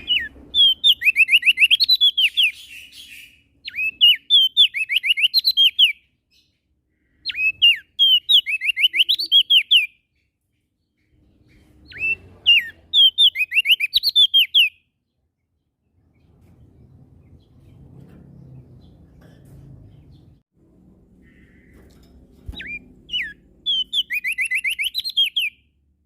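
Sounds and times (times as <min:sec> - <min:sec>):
faint low rumble: 0:15.9 - 0:23.8
bird whistling down-slurred notes: 0:22.6 - 0:25.6.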